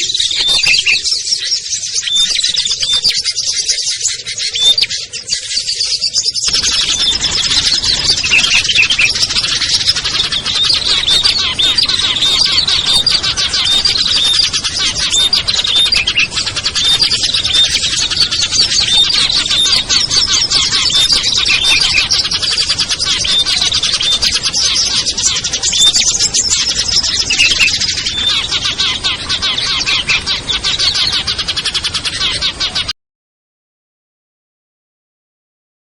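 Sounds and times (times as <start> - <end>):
songbirds chirping: 0.0 - 32.9
steady low noise: 6.5 - 32.4.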